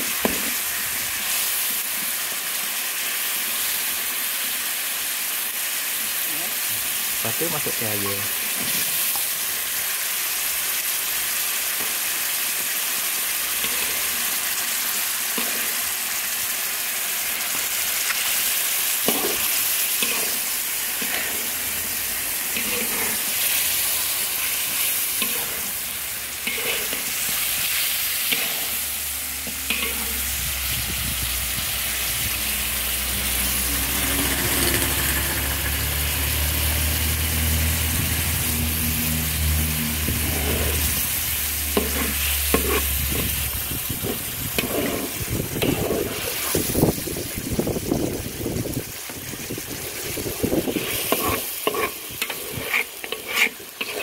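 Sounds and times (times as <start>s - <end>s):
chicken sizzling in sauce: 0.0s - 54.0s
spatula scraping and knocking pan: 13.6s - 14.1s, 19.0s - 21.6s, 22.5s - 23.3s, 25.2s - 25.8s, 26.4s - 27.4s, 28.3s - 28.7s, 29.4s - 30.2s, 40.1s - 40.8s, 41.7s - 43.4s, 44.0s - 46.6s, 50.7s - 54.0s
low engine hum: 30.3s - 44.7s.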